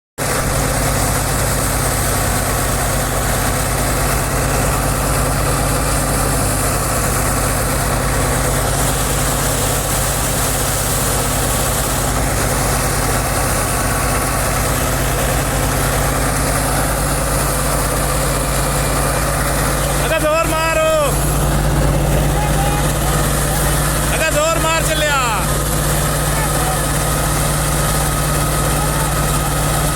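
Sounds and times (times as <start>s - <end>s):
tractor diesel engine running: 0.2s - 29.9s.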